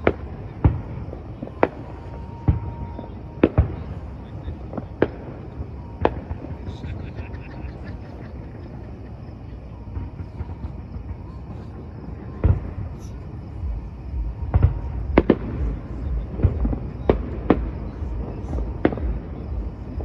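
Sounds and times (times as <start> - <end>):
fireworks bursting with sharp bangs: 0.0 - 20.0
low rumble: 10.0 - 20.0.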